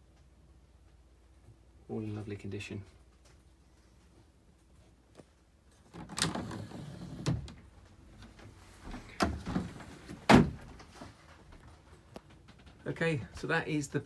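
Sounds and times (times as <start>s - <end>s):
sliding wooden cabinet doors: 5.9s - 11.2s.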